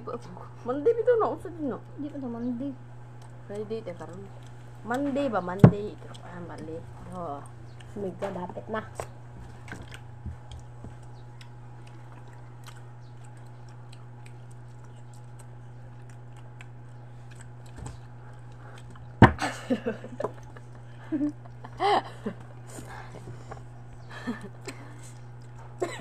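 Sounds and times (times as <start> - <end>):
voices: 0.0 - 2.8, 3.5 - 9.1
steady low hum: 0.0 - 26.0
people chewing orange slices: 3.0 - 8.2, 9.0 - 19.2, 19.8 - 26.0.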